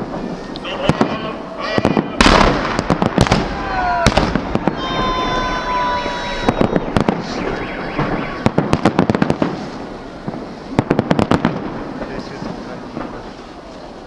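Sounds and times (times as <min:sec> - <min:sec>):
fireworks bangs and crackles: 0:00.0 - 0:14.0
high whistling tone: 0:04.8 - 0:08.5.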